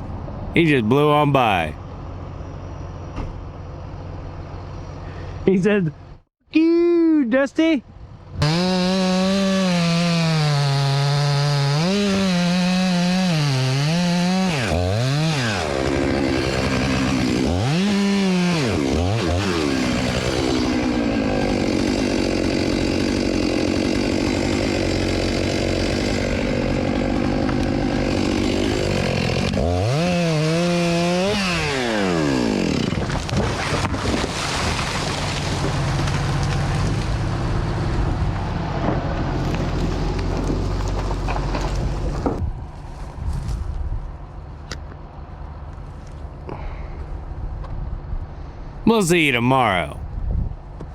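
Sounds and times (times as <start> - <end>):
chainsaw cutting wood: 8.4 - 37.3.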